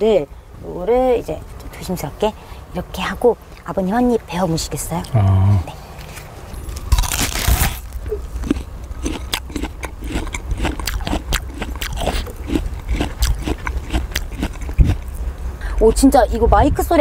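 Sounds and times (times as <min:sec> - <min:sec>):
chewing crunches: 0:04.8 - 0:15.3
crisp bite into food: 0:06.7 - 0:14.8.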